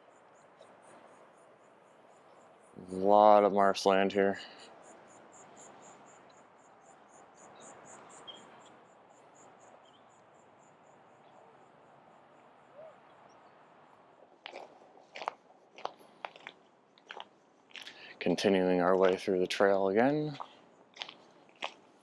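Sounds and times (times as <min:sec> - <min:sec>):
faint insect chirping: 0:00.0 - 0:22.0
soft outdoor hiss: 0:00.0 - 0:22.0
footsteps crunching: 0:14.2 - 0:22.0.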